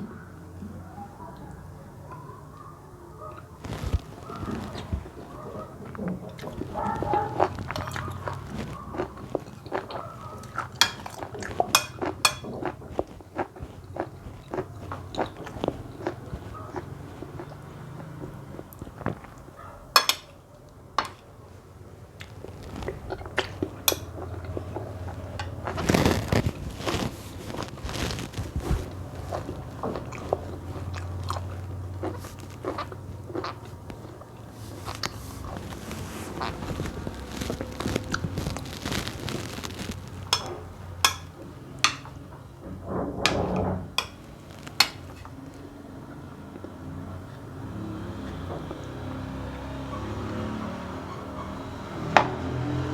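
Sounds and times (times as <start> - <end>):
mouth sounds of eating: 0.0 - 19.6, 22.2 - 42.0
cutlery clinking on a dish: 9.4 - 12.8, 20.0 - 20.4, 40.3 - 42.2, 43.2 - 44.2.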